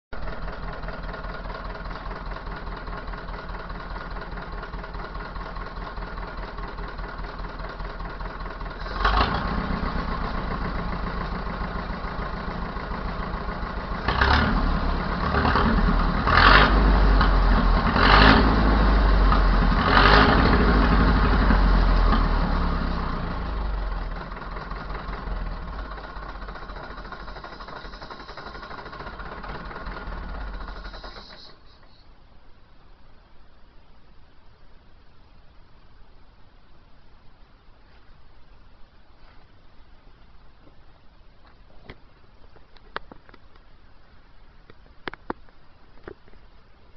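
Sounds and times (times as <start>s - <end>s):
tractor diesel engine revving: 0.1s - 32.0s.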